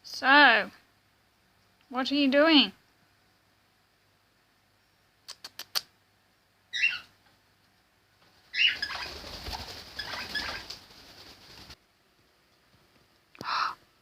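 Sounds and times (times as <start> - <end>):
parrot clicks: 5.3 - 5.9
parrot chirp: 6.7 - 7.2, 8.5 - 10.8
rustling and scrabbling: 8.2 - 11.8.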